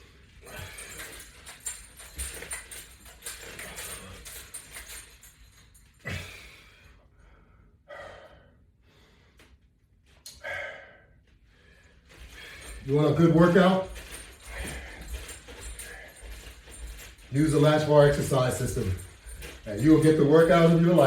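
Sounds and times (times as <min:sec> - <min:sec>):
man breathing hard: 0:00.0 - 0:02.0, 0:06.0 - 0:09.6, 0:10.3 - 0:12.9, 0:13.9 - 0:17.2.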